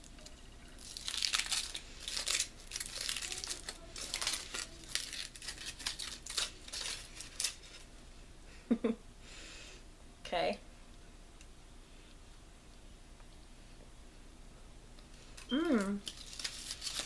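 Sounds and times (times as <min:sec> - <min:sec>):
snack wrapper crinkling: 0:00.8 - 0:07.9, 0:15.3 - 0:17.0.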